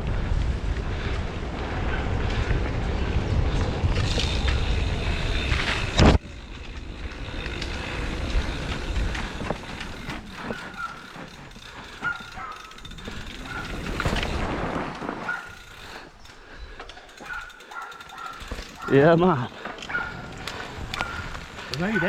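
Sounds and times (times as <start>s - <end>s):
bike rattling over ground: 0.0s - 22.0s
bike rumbling over trail: 0.0s - 22.0s
freewheel hub clicking: 3.9s - 14.6s, 15.3s - 22.0s.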